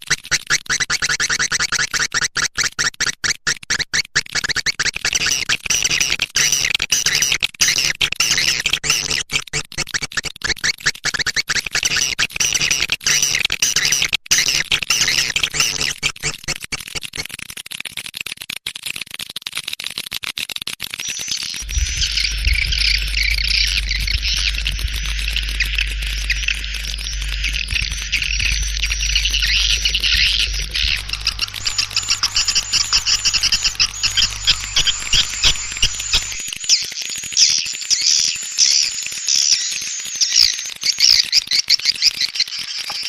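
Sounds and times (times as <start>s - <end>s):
swiftlet chirps and twittering: 11.9s - 16.4s, 21.6s - 36.8s
steady low hum: 21.6s - 36.6s.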